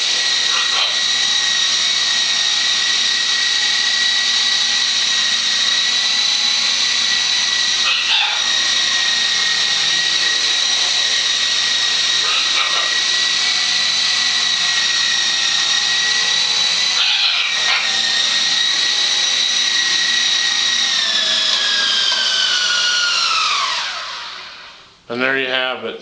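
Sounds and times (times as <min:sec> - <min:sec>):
model helicopter rotor whining: 0:00.0 - 0:24.9.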